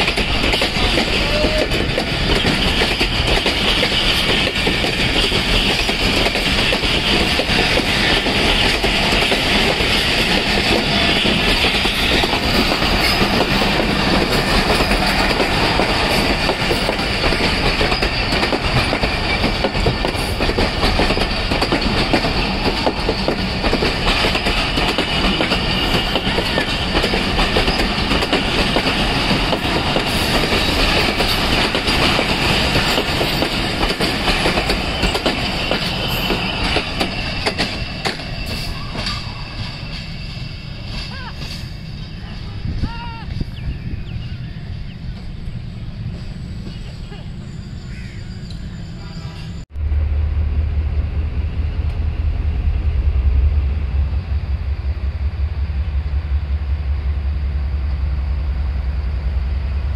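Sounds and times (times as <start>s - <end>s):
train wheels clattering over rail joints: 0.0s - 41.8s
steady high squeal: 17.1s - 20.4s, 34.1s - 59.8s.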